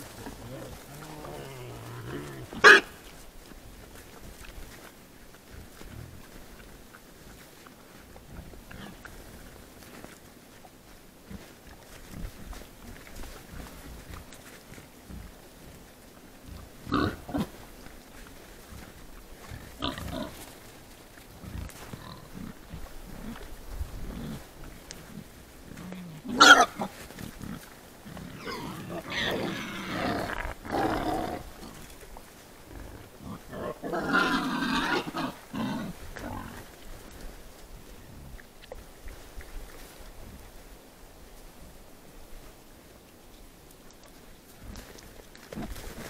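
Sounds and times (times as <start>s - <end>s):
wild boars calling: 0.0s - 3.2s, 25.1s - 27.6s, 28.2s - 31.5s, 32.8s - 36.6s.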